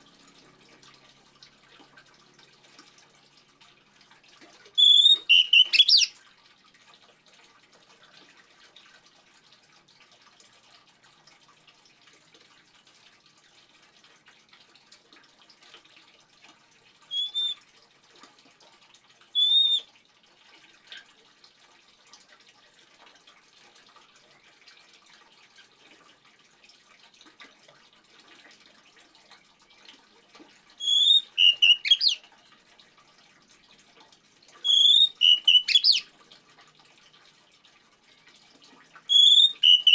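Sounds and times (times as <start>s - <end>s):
water trickling: 0.0s - 39.9s
bird whistling: 4.8s - 6.1s, 17.1s - 17.6s, 19.4s - 19.8s, 30.8s - 32.2s, 34.6s - 36.1s, 39.1s - 39.9s.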